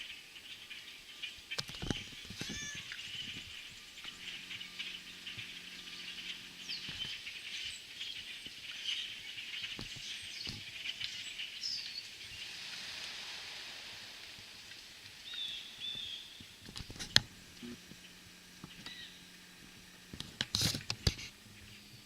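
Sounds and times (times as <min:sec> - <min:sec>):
flock of starlings chattering: 0:00.0 - 0:12.6, 0:15.2 - 0:22.0.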